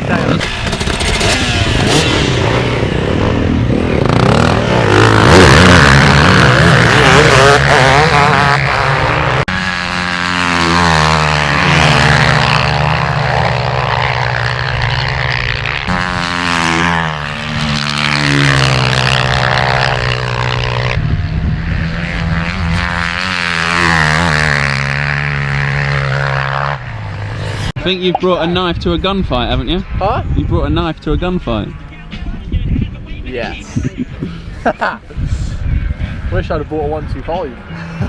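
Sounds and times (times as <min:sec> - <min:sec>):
motocross bike engine revving: 0:00.0 - 0:27.9.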